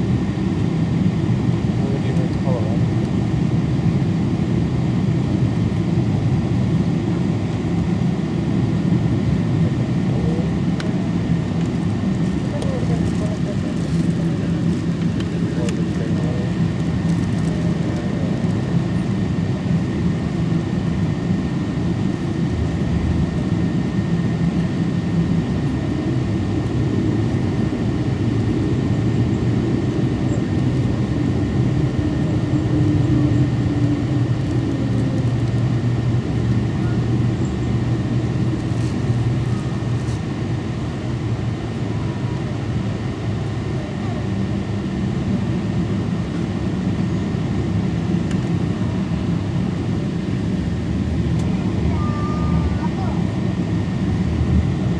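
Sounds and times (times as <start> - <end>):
jet engine cabin rumble: 0.0 - 54.9.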